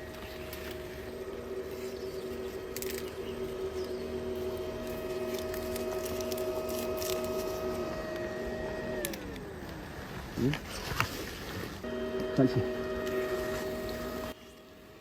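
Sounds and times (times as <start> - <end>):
vacuum cleaner motor humming: 0.0 - 15.0.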